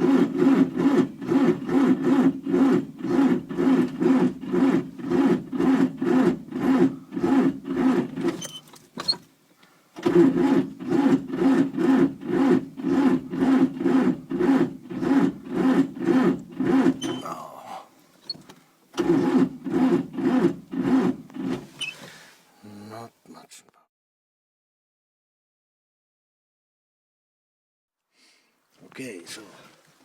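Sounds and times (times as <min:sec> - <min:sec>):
diesel engine cranking slowly: 0:00.0 - 0:08.6, 0:10.0 - 0:17.3, 0:18.4 - 0:22.0.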